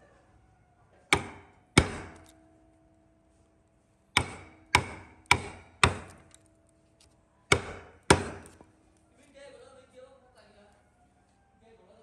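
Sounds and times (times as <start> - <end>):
chopping strikes on wood: 1.1 - 2.3, 4.2 - 6.3, 7.5 - 8.6.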